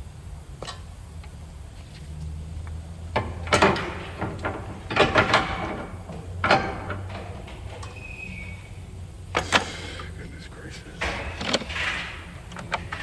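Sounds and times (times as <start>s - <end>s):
steady low hum: 0.0s - 13.0s
hard objects knocking and clattering: 3.0s - 8.0s.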